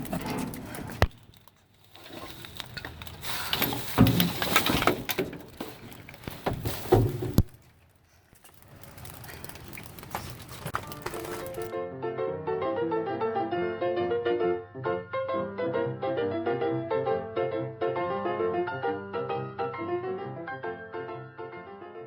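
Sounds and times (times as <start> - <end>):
rummaging through a dumpster: 0.0 - 11.7.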